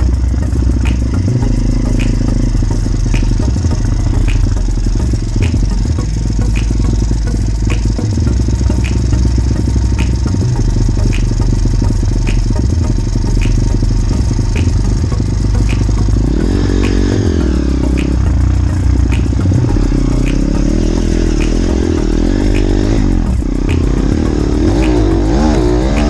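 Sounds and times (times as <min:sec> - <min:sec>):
light high tick: 0:17.9 - 0:26.0.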